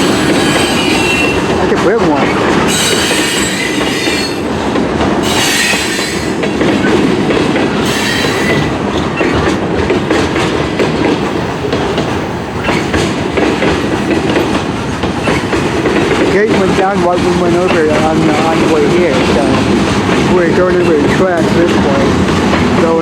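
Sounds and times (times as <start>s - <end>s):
high wheel squeal: 0.0s - 1.4s, 2.7s - 4.4s, 5.2s - 6.3s
freight train wheels rumbling on rails: 0.0s - 23.0s.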